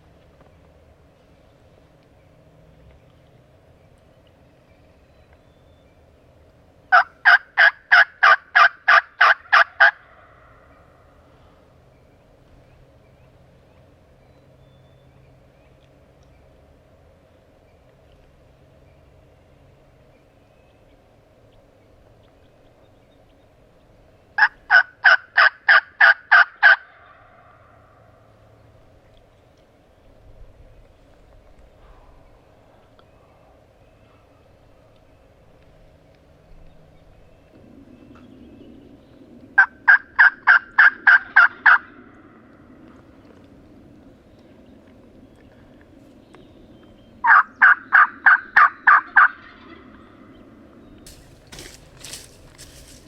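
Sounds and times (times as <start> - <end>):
turkey yelps: 6.9 - 10.4, 24.4 - 27.6, 39.6 - 41.9, 47.2 - 49.9.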